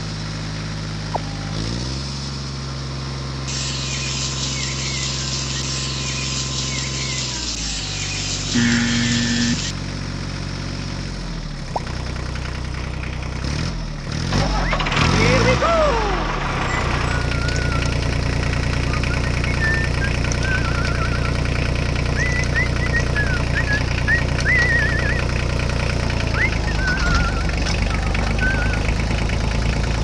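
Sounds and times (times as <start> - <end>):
tractor engine idling: 0.0 - 30.0
birds chirping: 3.5 - 9.7, 16.7 - 30.0.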